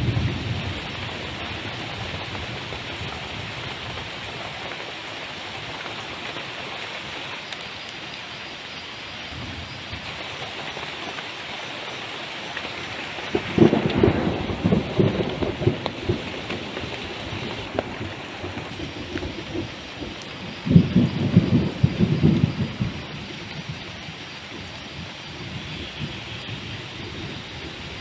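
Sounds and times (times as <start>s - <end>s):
heavy rain falling: 0.0s - 28.0s
low thumps and crackles: 13.3s - 23.2s.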